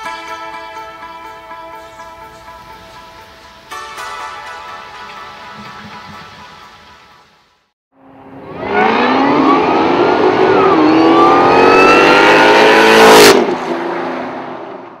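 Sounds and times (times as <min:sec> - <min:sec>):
car engine accelerating: 0:08.0 - 0:15.0.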